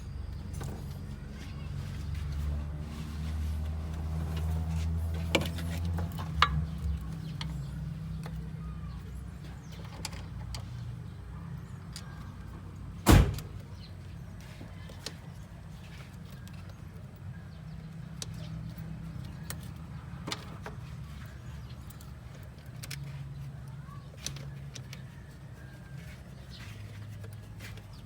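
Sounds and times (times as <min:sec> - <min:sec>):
car engine running: 0:00.4 - 0:10.0.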